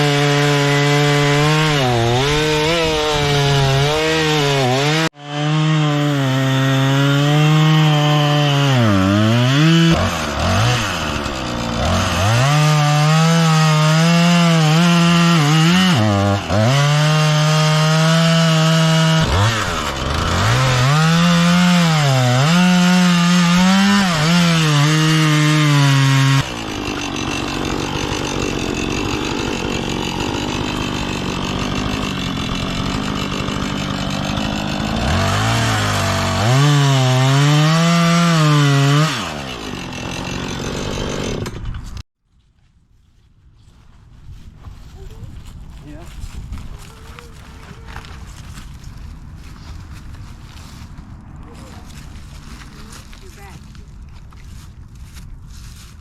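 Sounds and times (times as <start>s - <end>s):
chainsaw cutting wood: 0.0s - 42.0s.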